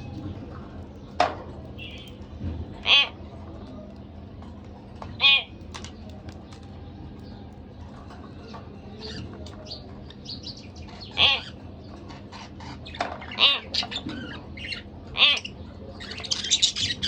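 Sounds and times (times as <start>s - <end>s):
harsh bird calls: 0.0s - 3.7s, 4.9s - 7.4s, 8.0s - 17.0s
budgerigars chirping softly: 1.8s - 2.2s, 9.0s - 17.0s.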